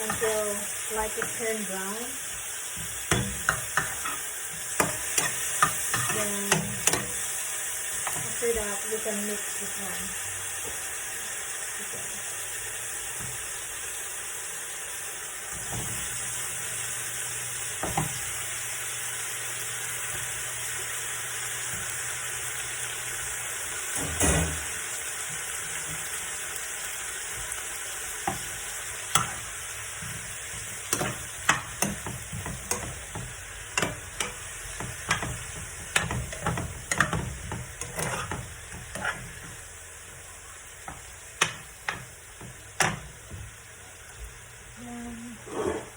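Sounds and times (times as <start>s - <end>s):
onion and garlic sizzling in oil: 0.0s - 45.9s
utensil scraping against pan: 3.1s - 7.2s, 29.1s - 39.7s, 45.4s - 45.9s.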